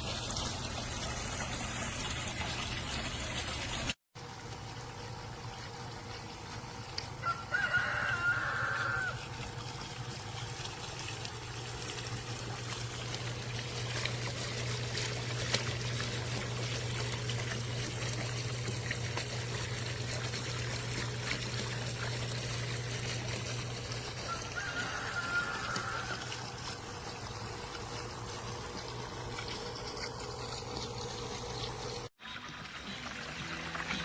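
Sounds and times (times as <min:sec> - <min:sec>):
fountain water splashing: 0:00.0 - 0:34.0.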